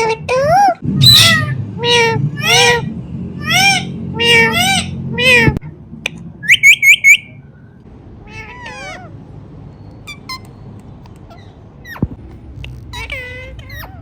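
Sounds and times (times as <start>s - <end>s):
parrot squawking: 0.0s - 5.6s, 6.4s - 7.4s, 8.3s - 9.3s, 12.8s - 14.0s
parrot warbling chatter: 0.0s - 5.6s, 8.3s - 9.3s, 12.8s - 14.0s
parrot mimicking cat meow: 0.0s - 5.7s, 8.2s - 9.2s.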